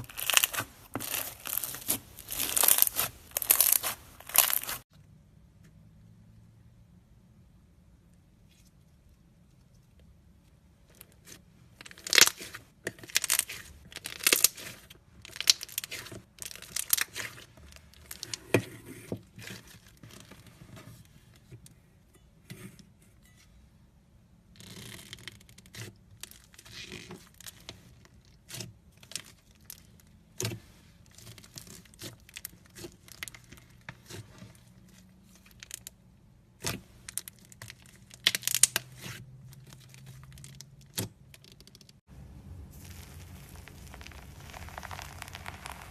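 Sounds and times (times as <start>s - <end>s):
crunchy slime crackling and popping: 0.0s - 4.9s, 11.2s - 18.5s, 24.6s - 36.0s, 36.6s - 45.9s.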